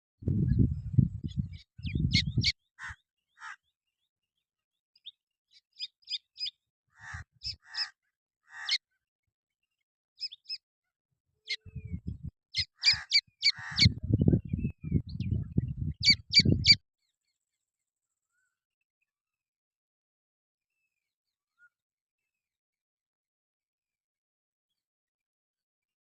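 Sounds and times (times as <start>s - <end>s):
low pulsing rumble: 0.2s - 2.5s, 11.8s - 12.3s, 13.8s - 16.7s
baby birds chirping: 5.8s - 7.9s, 12.6s - 14.0s, 16.0s - 16.8s.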